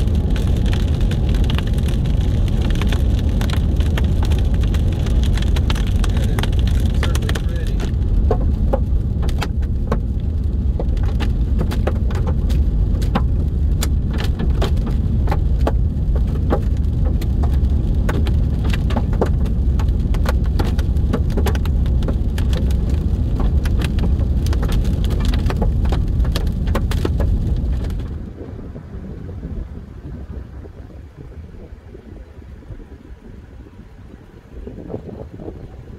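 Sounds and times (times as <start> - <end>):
hailstones striking a car: 0.0 - 28.2
road and wind rumble: 0.0 - 35.9.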